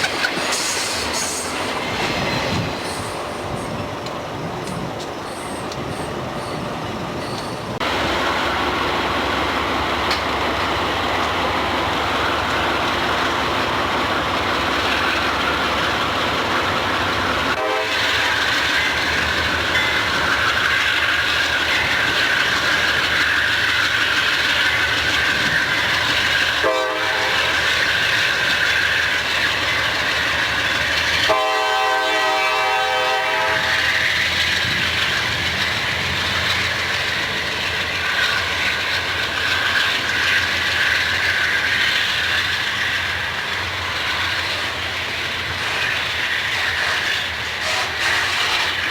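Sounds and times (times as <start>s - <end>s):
freight train rolling past: 0.0s - 48.9s
high wheel squeal: 0.4s - 3.8s, 5.2s - 6.6s
locomotive horn blasts: 17.6s - 18.4s, 26.6s - 27.5s, 31.3s - 33.7s, 47.6s - 48.6s.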